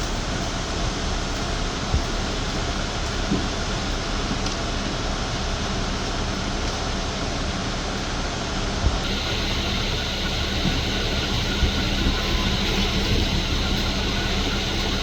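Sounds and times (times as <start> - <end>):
idling vehicle engines: 0.0 - 15.0
faint hum: 8.9 - 15.0
bright hiss: 9.0 - 15.0.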